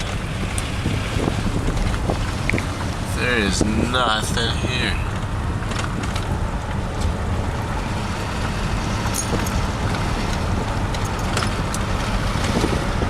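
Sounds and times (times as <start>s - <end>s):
road noise: 0.0s - 13.0s
vehicle engine rumble: 0.0s - 13.0s
wind rush on microphone: 0.0s - 13.0s.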